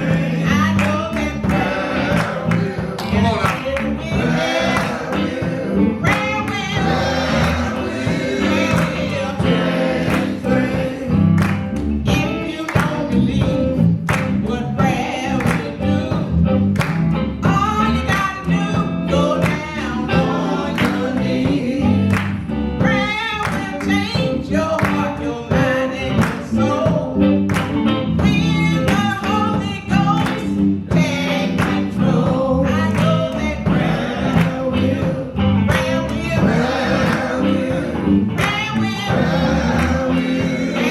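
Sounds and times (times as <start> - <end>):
drum beat: 0.0 - 13.8, 33.0 - 40.9
band accompaniment: 0.0 - 40.9
choir singing gospel: 0.0 - 40.9.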